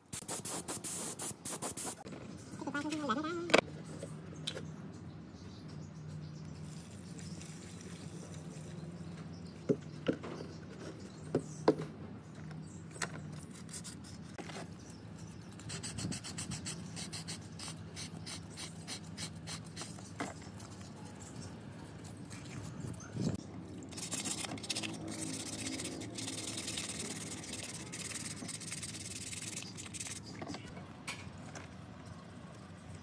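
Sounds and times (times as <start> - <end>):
quick rubbing strokes: 23.9 - 30.3.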